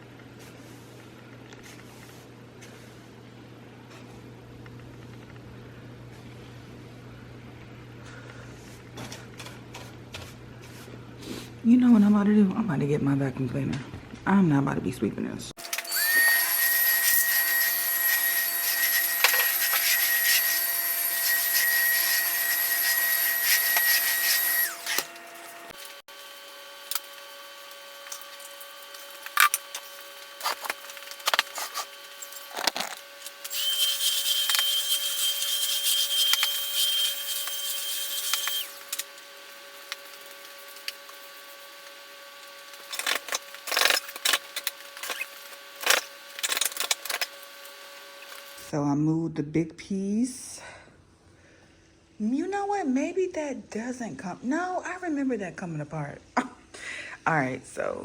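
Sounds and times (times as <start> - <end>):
vacuum cleaner running: 15.6 - 46.1.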